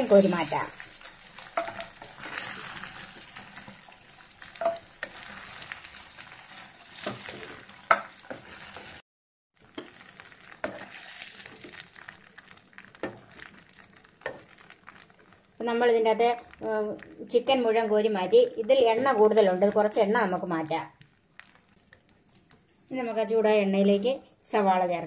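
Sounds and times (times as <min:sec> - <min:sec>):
chicken sizzling in oil: 0:00.0 - 0:09.0, 0:09.6 - 0:17.4
spatula scraping a pan: 0:00.0 - 0:09.0, 0:09.7 - 0:11.8.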